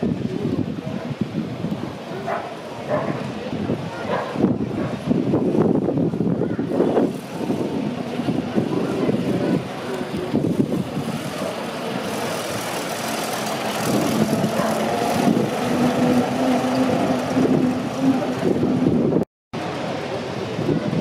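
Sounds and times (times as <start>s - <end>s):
car engine running: 10.4s - 18.9s.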